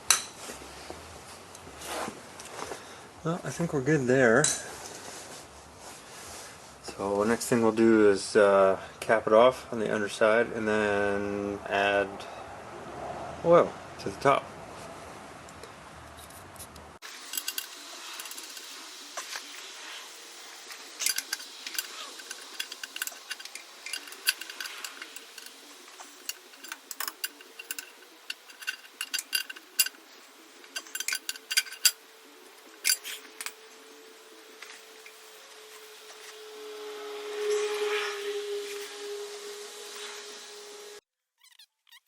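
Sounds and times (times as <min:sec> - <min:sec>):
ratchet clicking on metal: 0:17.0 - 0:19.5, 0:20.7 - 0:32.0, 0:32.7 - 0:33.6.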